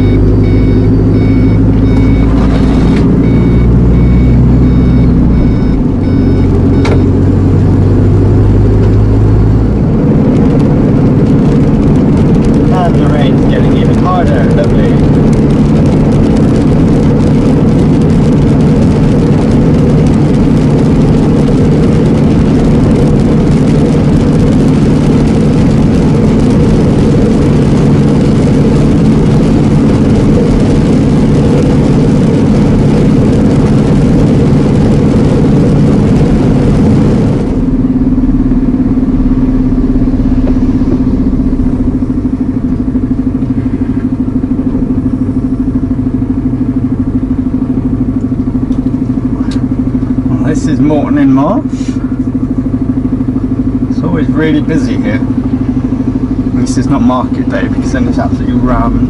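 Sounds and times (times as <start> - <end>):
diesel engine hum: 0.0 - 59.0.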